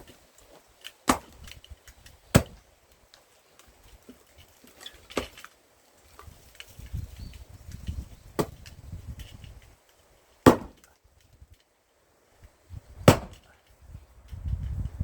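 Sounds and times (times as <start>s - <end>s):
axe chopping firewood: 0.0s - 2.7s, 3.6s - 5.5s, 8.3s - 8.8s, 10.4s - 11.0s, 13.0s - 13.6s.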